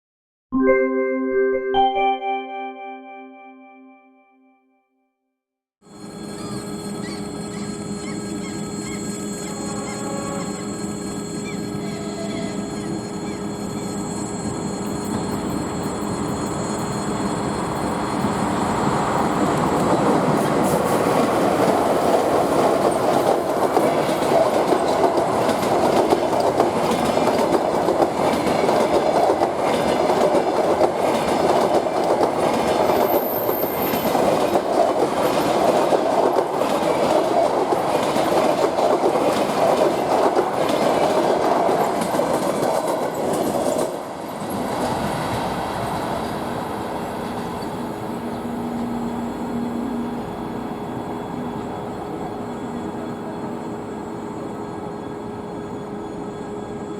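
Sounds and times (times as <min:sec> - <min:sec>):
electric locomotive whine: 0:05.8 - 0:56.9
high wheel squeal: 0:05.9 - 0:20.9, 0:47.0 - 0:56.9
train wheels clattering over rail joints: 0:19.3 - 0:44.2.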